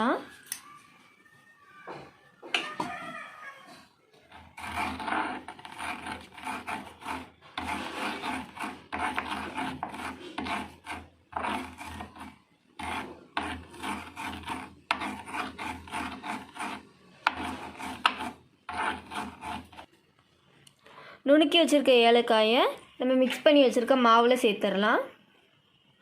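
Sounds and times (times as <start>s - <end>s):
spices crushed by hand grinding: 4.3s - 19.9s.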